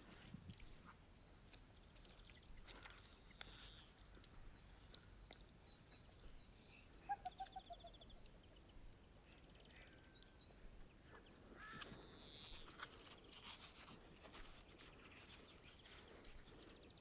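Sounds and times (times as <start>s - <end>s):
faint birdsong: 0.5s - 17.0s.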